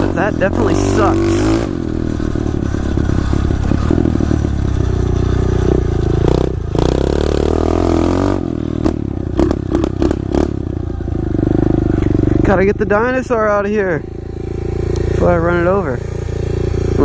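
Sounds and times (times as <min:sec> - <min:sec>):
pit bike engine running: 0:00.0 - 0:17.0
bike knocks and rattles: 0:01.9 - 0:06.9.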